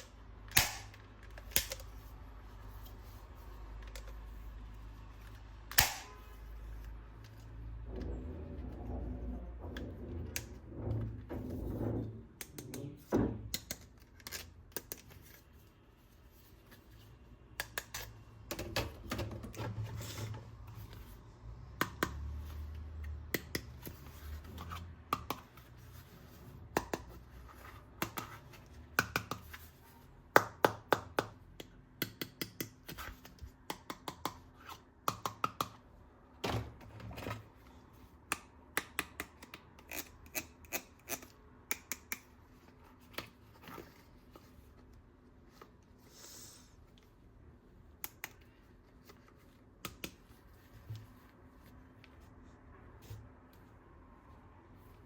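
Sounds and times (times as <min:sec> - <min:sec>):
plastic toy gun clicks and snaps: 0:00.5 - 0:01.9, 0:05.7 - 0:06.2.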